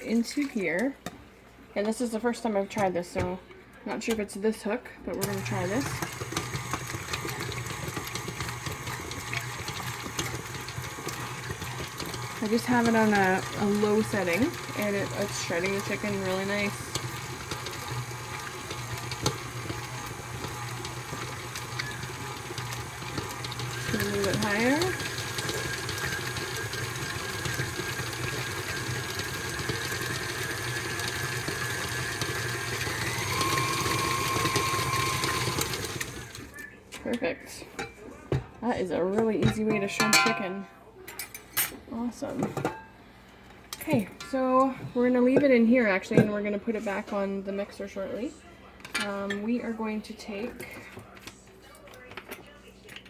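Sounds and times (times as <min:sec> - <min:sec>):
mixer attachment clattering: 0:05.2 - 0:36.6
stand mixer motor hum: 0:05.2 - 0:36.6.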